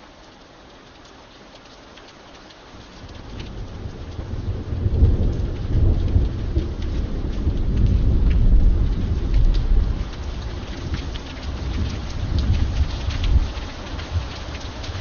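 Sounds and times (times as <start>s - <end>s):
raindrops ticking: 0.0s - 15.0s
steady rain: 0.0s - 15.0s
thunder rumbling: 3.0s - 15.0s.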